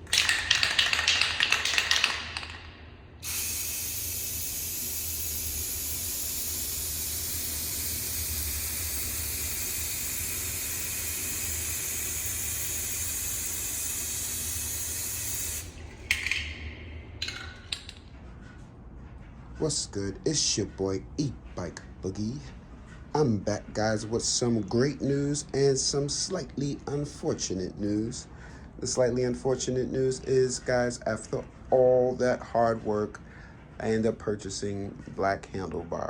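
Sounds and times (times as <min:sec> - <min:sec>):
clattering noise: 0:00.0 - 0:02.9, 0:15.8 - 0:18.3
spray paint can hissing: 0:00.0 - 0:16.5
short noisy bursts: 0:03.2 - 0:15.7.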